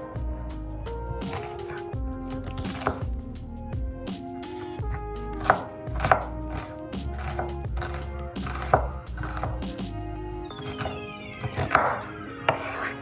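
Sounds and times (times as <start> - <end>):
knife chopping on cutting board: 1.2 - 3.0, 5.4 - 9.8, 10.6 - 13.0.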